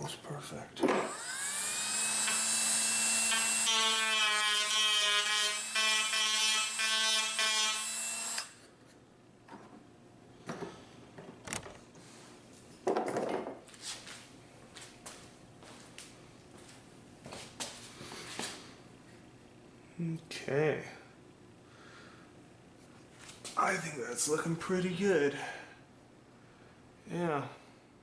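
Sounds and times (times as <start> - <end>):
rotary tool cutting wood: 1.0 - 8.6.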